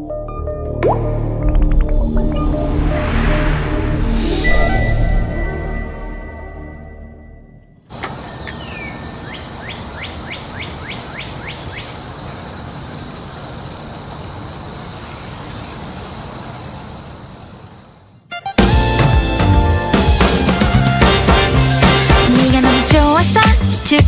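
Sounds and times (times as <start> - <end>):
music: 0.0 - 7.8, 18.3 - 24.0
high-pitched whine: 0.6 - 10.0
falling sweep: 0.7 - 6.4
steady hiss: 7.9 - 18.3.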